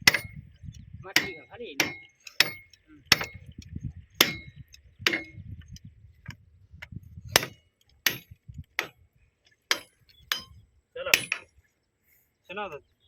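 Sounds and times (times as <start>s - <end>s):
hammer striking steel: 0.0s - 0.4s, 1.2s - 3.4s, 4.2s - 5.4s, 7.4s - 9.0s, 9.7s - 11.6s
low rumble: 0.0s - 1.1s, 3.0s - 7.4s.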